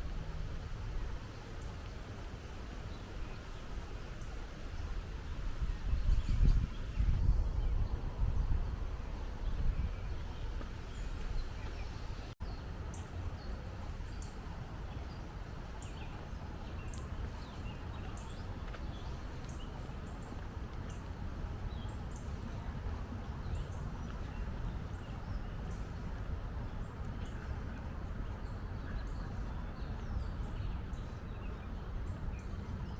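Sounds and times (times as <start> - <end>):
low outdoor rumble: 0.0 - 32.9
small birds chirping: 0.0 - 32.9.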